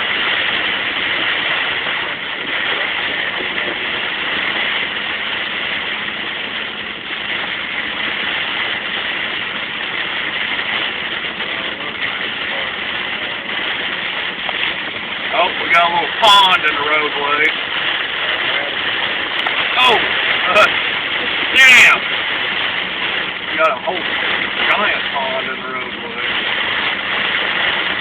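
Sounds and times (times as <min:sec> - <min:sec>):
heavy rain on car: 0:00.0 - 0:28.0
tyres on wet road: 0:00.0 - 0:28.0.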